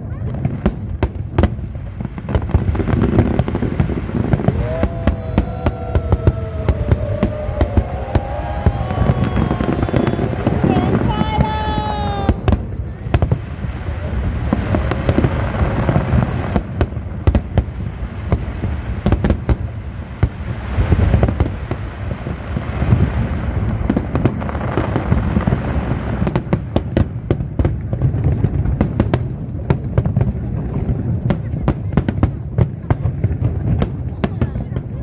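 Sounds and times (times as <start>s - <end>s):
fireworks booming bursts: 0.0s - 35.0s
fireworks sharp cracks: 0.2s - 35.0s.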